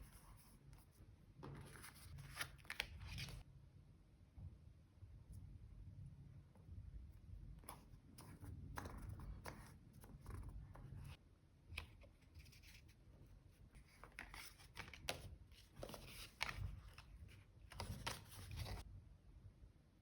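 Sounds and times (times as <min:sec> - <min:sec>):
paper rustling: 0:01.4 - 0:03.4, 0:13.8 - 0:18.8.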